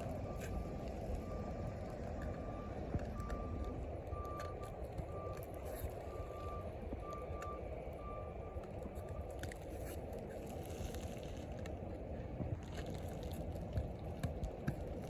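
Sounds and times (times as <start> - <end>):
reversing alarm beeping: 0.0 - 9.2.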